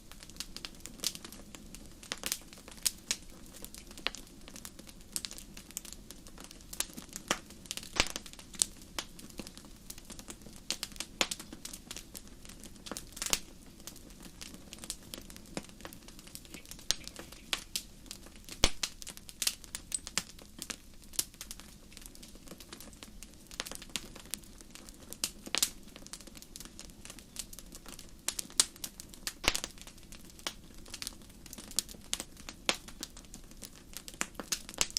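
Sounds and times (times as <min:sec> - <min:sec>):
fire crackling and popping: 0:00.0 - 0:34.9
low hiss of flames: 0:00.0 - 0:34.9.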